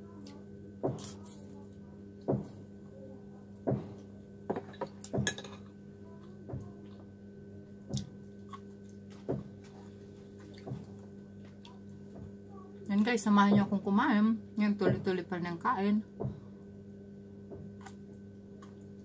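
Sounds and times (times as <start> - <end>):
steady low hum: 0.0 - 19.0
slurping and chewing: 8.4 - 9.1.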